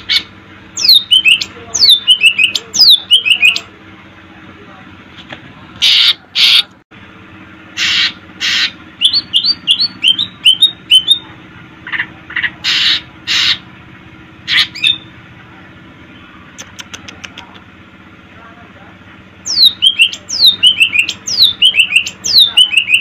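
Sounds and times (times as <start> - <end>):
bird harsh calls: 5.8 - 6.7, 7.7 - 13.7, 14.4 - 15.1, 19.4 - 23.0.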